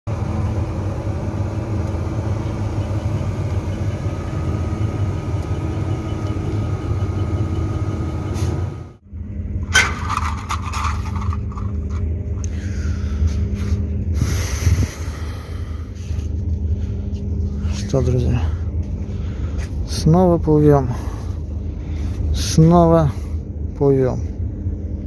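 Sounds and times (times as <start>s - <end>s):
engine running: 0.1s - 25.0s
rattling and knocking: 9.7s - 12.0s.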